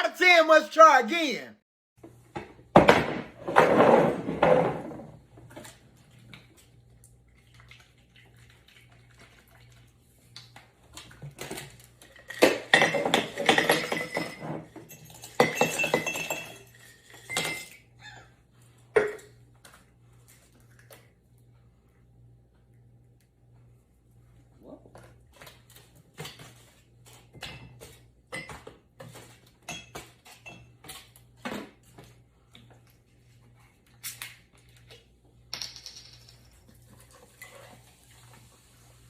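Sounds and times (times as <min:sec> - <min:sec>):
dishes and cutlery clattering: 0:12.2 - 0:17.8, 0:27.4 - 0:31.0.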